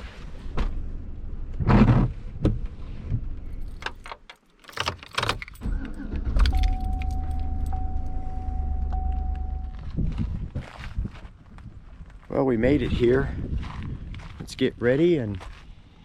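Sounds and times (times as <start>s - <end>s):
keys jangling: 3.5s - 9.8s
clicks and knocks: 3.6s - 5.6s
car engine running: 5.5s - 10.0s
thin steady tone: 6.5s - 10.0s.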